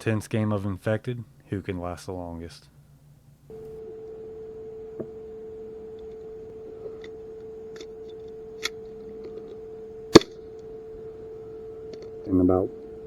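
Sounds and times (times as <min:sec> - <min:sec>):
faint clicks: 0:03.5 - 0:13.0
sharp loud click: 0:10.2 - 0:10.4.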